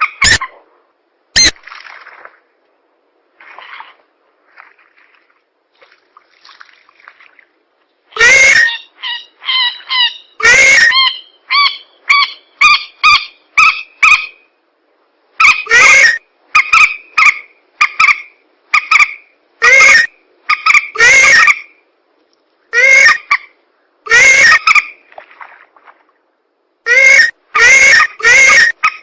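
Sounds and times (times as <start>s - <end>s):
distorted honking bird calls: 8.2s - 14.3s, 15.4s - 21.6s, 22.8s - 23.4s, 24.1s - 24.8s, 26.9s - 28.9s.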